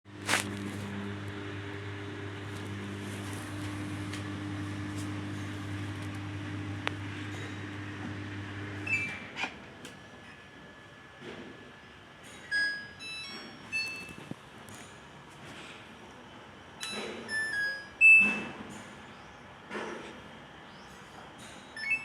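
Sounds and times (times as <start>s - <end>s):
washing machine humming: 0.1s - 10.2s.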